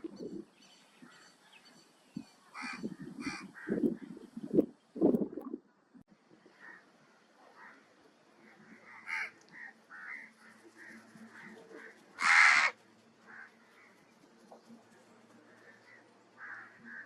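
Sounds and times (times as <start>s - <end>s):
loud harsh bird call: 8.9s - 13.6s.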